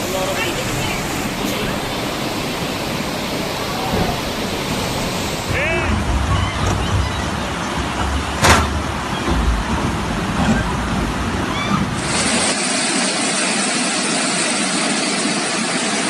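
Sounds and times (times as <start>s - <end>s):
bright steady hiss: 0.0s - 5.6s
floodwater rushing: 0.0s - 16.0s.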